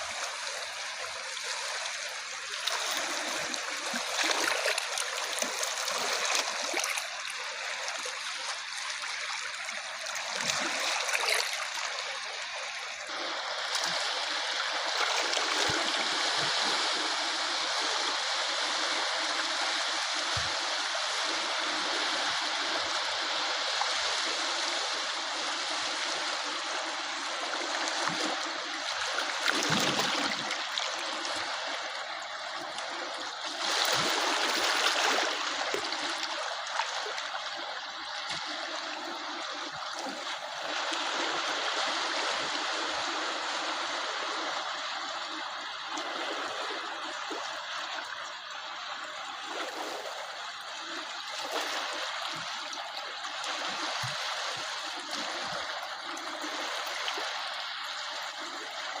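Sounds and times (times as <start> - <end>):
small waves washing ashore: 0.0 - 59.0.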